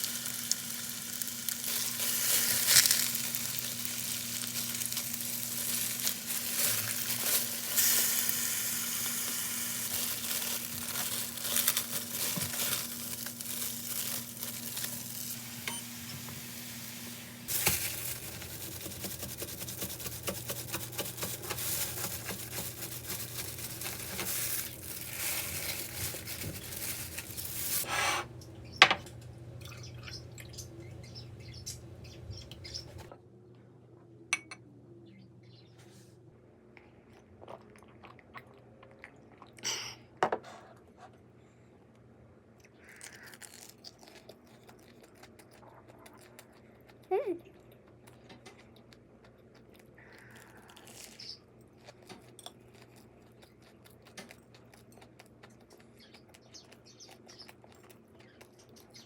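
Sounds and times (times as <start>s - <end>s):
food sizzling in a pan: 0.0s - 19.3s, 20.2s - 28.2s
low steady hum: 0.0s - 40.2s.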